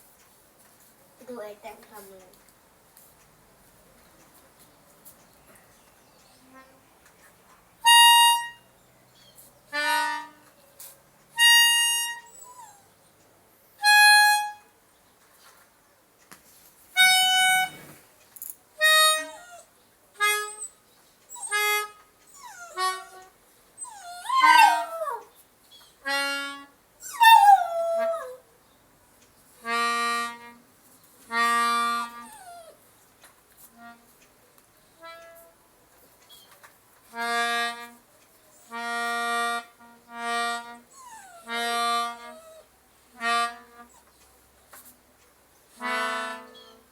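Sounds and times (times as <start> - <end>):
harmonica held notes: 7.8 - 8.7, 11.4 - 12.7, 13.8 - 14.6, 17.0 - 17.8, 26.0 - 28.2, 29.6 - 30.6, 31.3 - 32.7, 38.7 - 44.0, 45.8 - 46.9
dog howling and whimpering: 23.8 - 25.3, 27.0 - 28.4.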